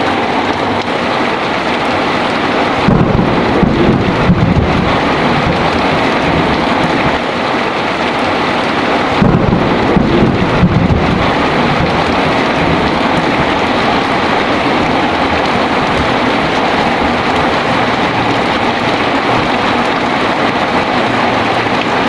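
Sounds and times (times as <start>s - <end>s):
heavy rain: 0.0s - 22.0s
thunder rumbling: 2.0s - 22.0s.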